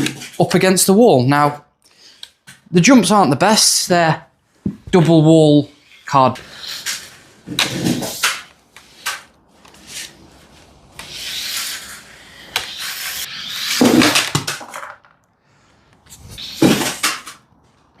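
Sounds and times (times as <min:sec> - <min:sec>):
toy car knocking into wall: 0:13.7 - 0:15.1
tyres scrabbling on floor: 0:13.7 - 0:15.2.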